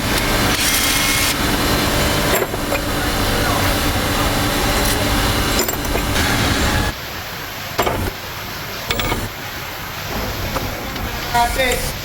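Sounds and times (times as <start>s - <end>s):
diesel engine running: 0.0s - 7.0s.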